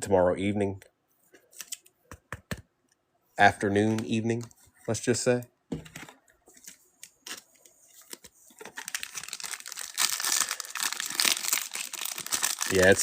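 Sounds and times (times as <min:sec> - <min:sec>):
foil wrapper crinkling: 0:08.0 - 0:13.0.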